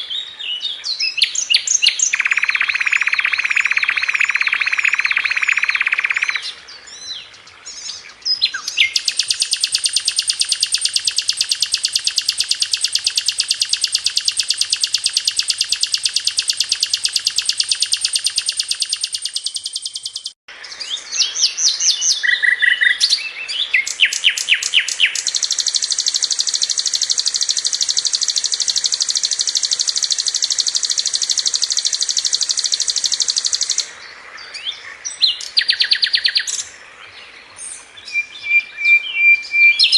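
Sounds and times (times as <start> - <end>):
bird sharp chirps: 0.0 - 36.8, 38.0 - 39.9
bird high-pitched trills: 1.2 - 6.5, 8.4 - 20.4, 23.8 - 33.9.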